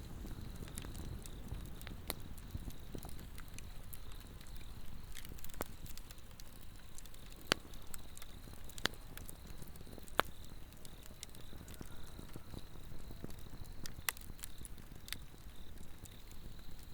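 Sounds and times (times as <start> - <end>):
log fire crackling: 0.0 - 16.9
sharp pops of fire: 0.0 - 16.9.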